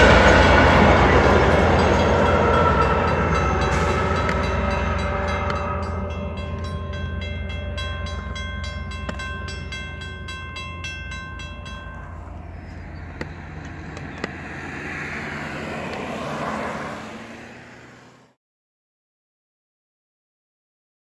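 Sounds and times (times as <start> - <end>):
bell ringing: 0.0 - 16.2
passenger train rumbling: 0.0 - 18.3
vehicle tyre noise: 0.0 - 18.4.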